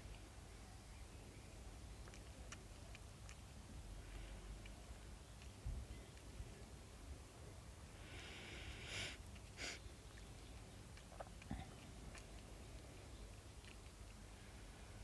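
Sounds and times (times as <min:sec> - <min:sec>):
pet chewing a snack: 0:01.8 - 0:06.5, 0:09.2 - 0:15.0
hissy breaths or sniffs: 0:08.0 - 0:09.9.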